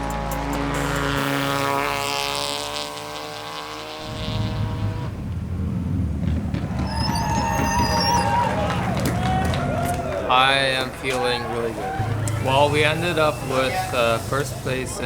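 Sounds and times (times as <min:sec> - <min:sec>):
rally car engine passing: 0:00.0 - 0:15.0
low rumble: 0:04.0 - 0:10.7
tyre and gravel hiss: 0:11.6 - 0:15.0.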